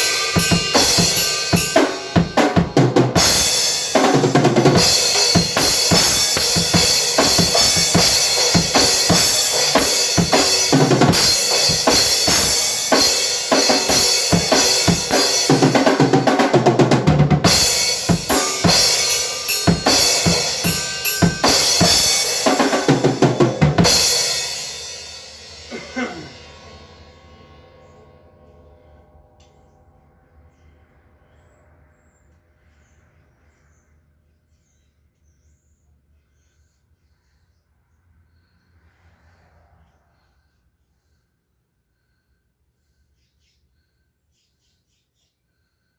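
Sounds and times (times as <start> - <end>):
cymbals washing: 0.0 - 16.6, 17.4 - 31.0
bass drum and snare strokes: 0.0 - 24.9
fast drum kit playing: 0.0 - 27.5.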